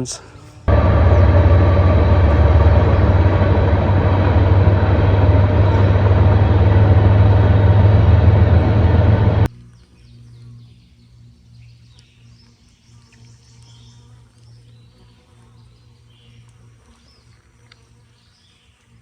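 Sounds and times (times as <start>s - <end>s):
car engine rumble: 0.7s - 9.5s
road noise: 0.7s - 9.5s.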